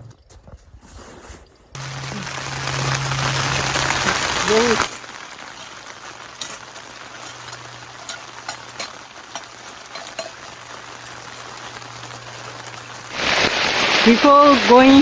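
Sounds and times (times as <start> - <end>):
light rain hissing: 1.7 - 15.0
raindrops ticking on a surface: 1.8 - 15.0.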